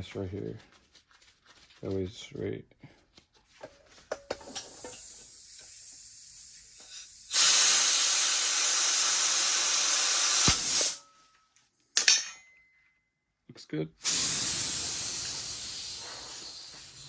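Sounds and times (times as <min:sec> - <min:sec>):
compressed air hissing: 0:04.3 - 0:11.0, 0:14.0 - 0:17.0.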